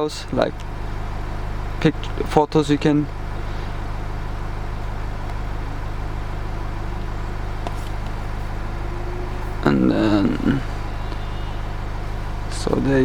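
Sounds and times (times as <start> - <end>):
low drone inside car cabin: 0.0 - 13.0.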